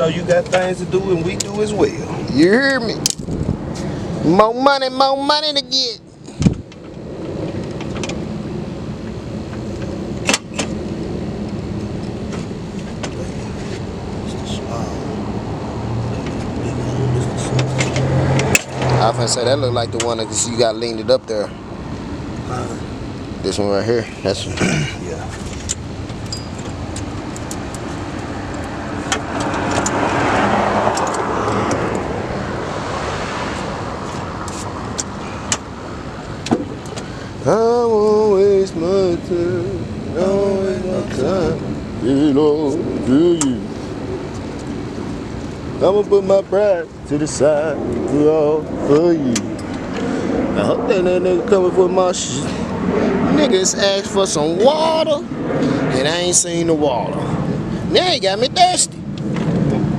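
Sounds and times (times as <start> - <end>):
car engine idling: 0.0 - 59.9
sharp metallic clinks: 26.2 - 27.6.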